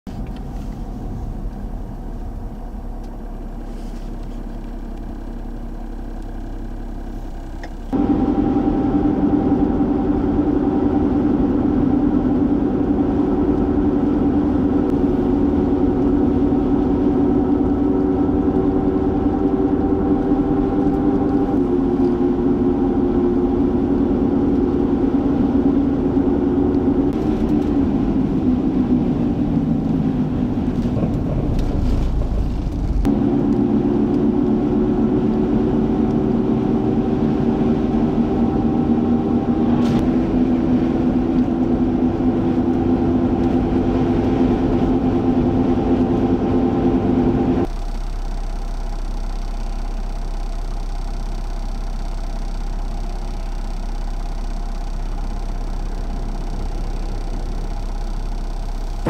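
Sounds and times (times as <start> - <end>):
road noise: 0.1 - 47.8
car engine hum: 0.1 - 59.0
low wind rumble: 7.9 - 47.7.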